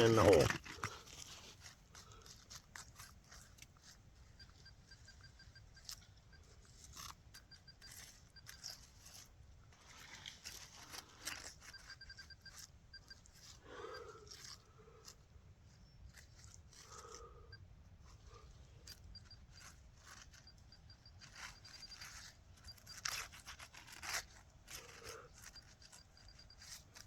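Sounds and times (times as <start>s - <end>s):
metal detector beeping: 0.0s - 1.0s, 3.3s - 9.3s, 10.4s - 14.6s, 18.8s - 27.0s
digging in wet soil: 0.0s - 27.0s.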